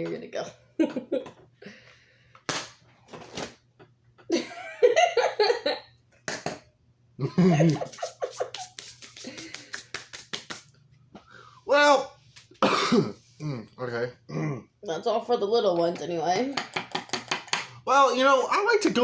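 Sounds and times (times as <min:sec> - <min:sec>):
laughter: 0:00.8 - 0:01.4, 0:04.3 - 0:05.9, 0:07.2 - 0:09.8.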